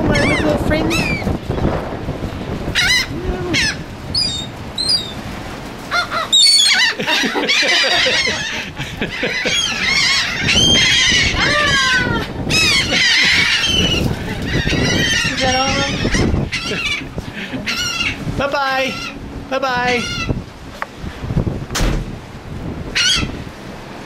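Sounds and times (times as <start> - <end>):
seagulls calling: 0.0 - 1.4, 2.7 - 19.2, 19.9 - 20.4, 22.9 - 23.4.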